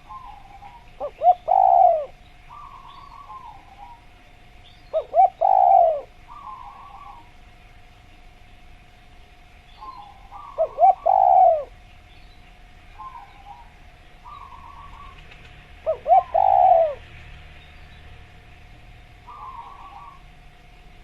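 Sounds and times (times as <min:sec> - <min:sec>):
dove cooing: 0:00.0 - 0:04.2, 0:04.8 - 0:07.4, 0:09.8 - 0:11.8, 0:12.9 - 0:17.2, 0:19.2 - 0:20.4
bird trilling: 0:00.0 - 0:07.3, 0:09.7 - 0:17.0, 0:19.2 - 0:20.3.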